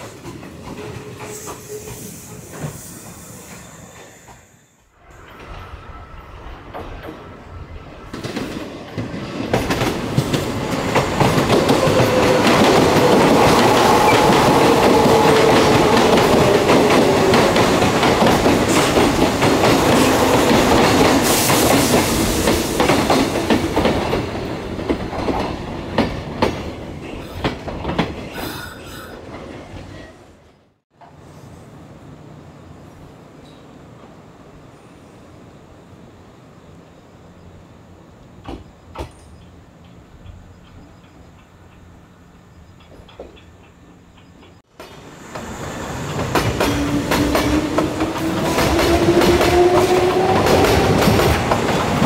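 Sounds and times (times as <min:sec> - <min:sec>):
electric train running: 0:09.5 - 0:25.4, 0:44.3 - 0:52.0
wheels clicking over rail joints: 0:38.4 - 0:52.0.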